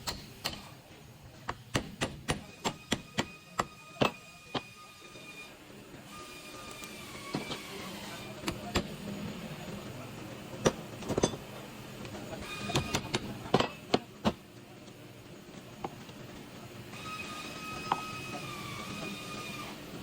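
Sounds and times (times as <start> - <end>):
metallic tool knocks and clanks: 10.6 - 11.4.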